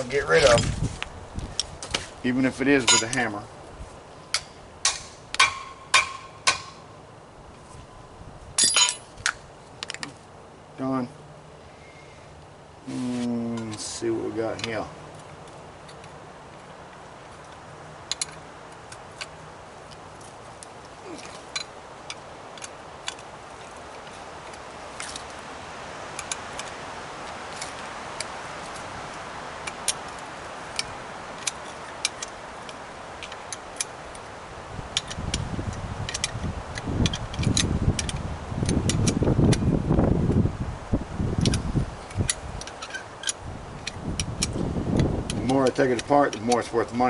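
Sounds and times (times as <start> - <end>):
rough rustling and bumping: 0.0 - 6.8
steady low hiss: 0.0 - 47.0
metal parts clinking: 8.6 - 10.0, 41.4 - 44.6.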